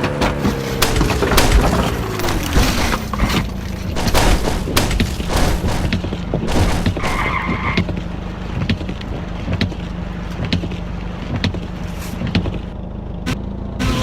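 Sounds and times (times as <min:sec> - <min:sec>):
sharp knocks: 0:00.0 - 0:07.4
car engine and road noise: 0:00.0 - 0:14.0
tyre squeal: 0:06.9 - 0:08.0.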